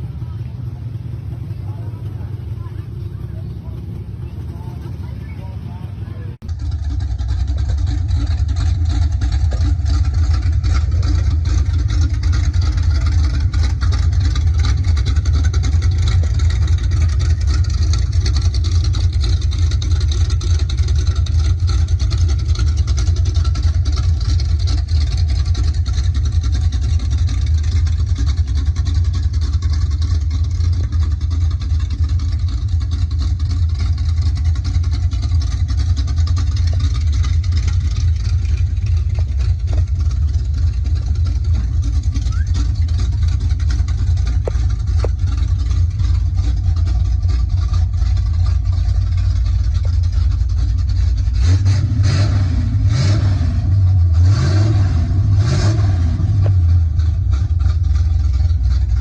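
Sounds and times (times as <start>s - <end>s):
car engine running: 0.0s - 59.0s.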